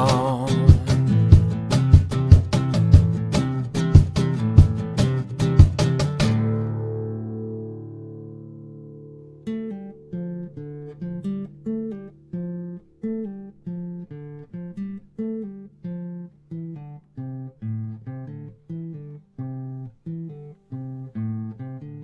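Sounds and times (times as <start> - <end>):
acoustic guitar plucked notes: 0.0 - 22.0.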